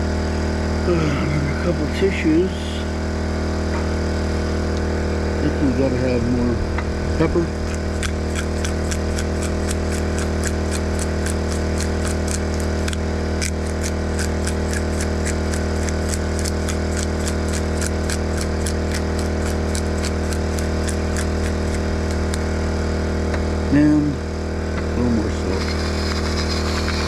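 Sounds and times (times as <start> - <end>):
generator humming: 0.0 - 27.0
pepper grinder clicking: 7.6 - 22.4.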